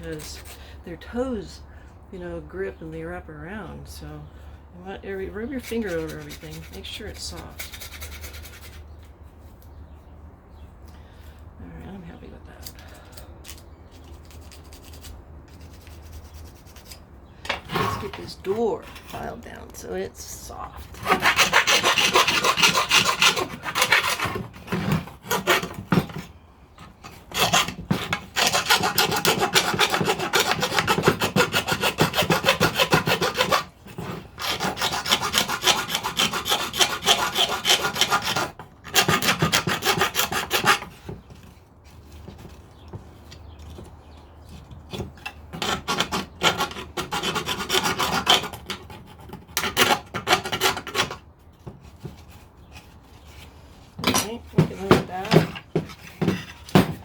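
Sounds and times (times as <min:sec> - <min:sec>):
hand file rasping on wood: 0:05.2 - 0:08.8, 0:21.0 - 0:26.3, 0:27.1 - 0:41.3, 0:44.9 - 0:51.2.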